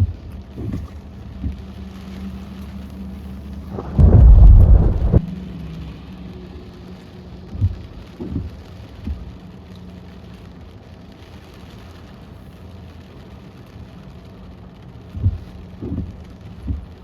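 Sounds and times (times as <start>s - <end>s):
low hum: 0.0s - 9.7s
rain on a car: 0.0s - 17.0s
faint low thumps: 3.7s - 5.2s
thunderclap: 3.7s - 5.3s.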